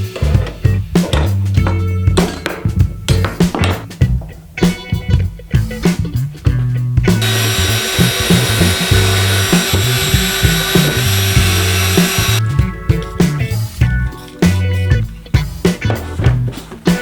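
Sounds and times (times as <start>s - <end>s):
background music with bass line: 0.0s - 17.0s
power tool whining: 7.2s - 12.4s.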